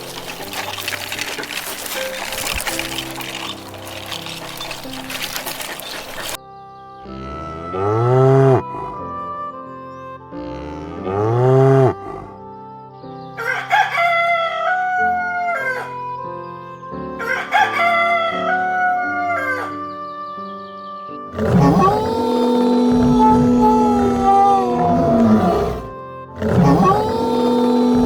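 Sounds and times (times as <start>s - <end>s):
low animal calls: 0.0s - 6.4s, 21.3s - 28.0s
rooster crowing: 13.4s - 15.9s, 17.2s - 19.8s.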